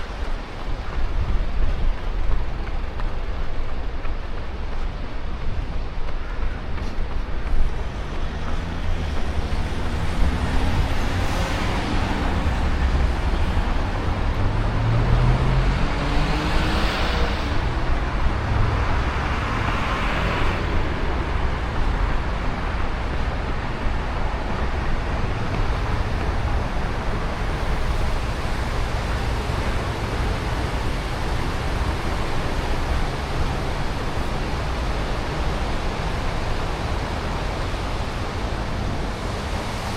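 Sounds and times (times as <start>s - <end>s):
street traffic: 0.0s - 39.9s
wind rumble on microphone: 0.0s - 39.9s
vehicle passing: 7.4s - 23.2s.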